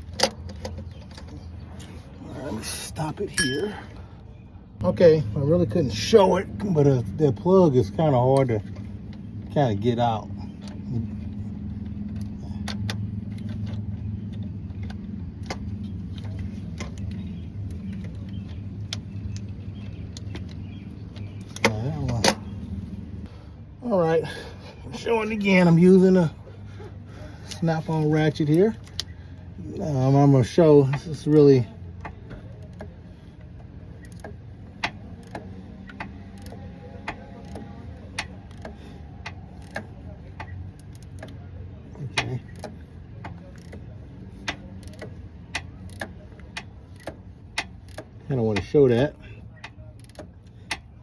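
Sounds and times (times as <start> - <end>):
hand ratchet clicking: 34.0 - 41.4, 42.1 - 50.9.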